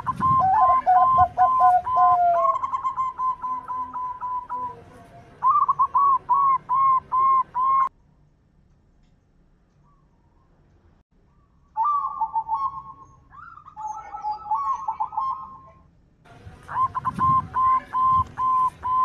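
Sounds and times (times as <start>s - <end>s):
dove cooing: 0.0s - 7.9s, 11.8s - 15.8s, 16.7s - 19.0s
lower bird voice: 0.0s - 7.9s, 11.2s - 19.0s.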